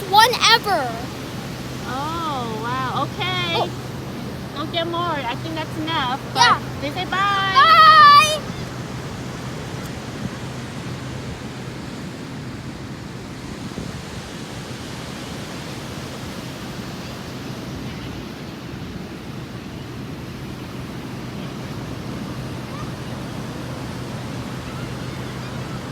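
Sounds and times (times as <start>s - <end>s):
wind buffeting microphone: 0.0s - 14.6s
ocean surf: 0.0s - 25.9s.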